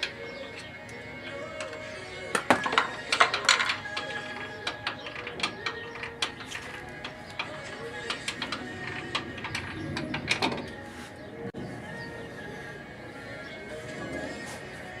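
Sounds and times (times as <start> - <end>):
hand tools clicking and clanking: 0.0 - 11.6.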